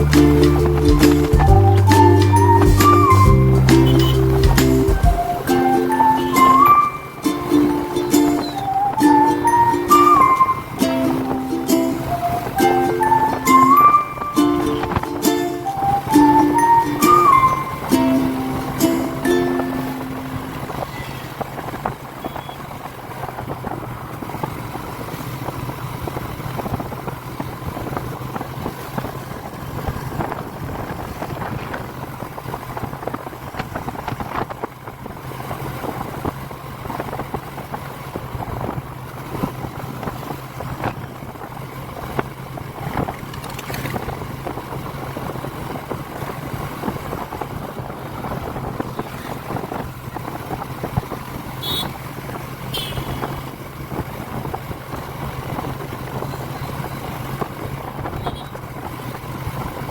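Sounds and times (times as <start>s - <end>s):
motorcycle engine running: 3.3s - 5.4s, 19.6s - 59.9s
wind on microphone: 6.7s - 59.9s.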